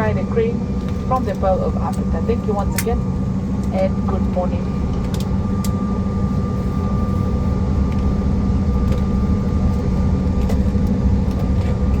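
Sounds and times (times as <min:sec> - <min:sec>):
aircraft engine rumble: 0:00.0 - 0:12.0
steady hum: 0:00.0 - 0:12.0.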